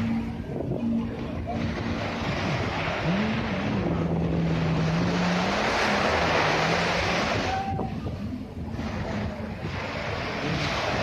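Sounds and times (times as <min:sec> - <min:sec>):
boat engine droning: 0:00.0 - 0:11.0
surf: 0:00.0 - 0:11.0
wind on microphone: 0:00.0 - 0:11.0.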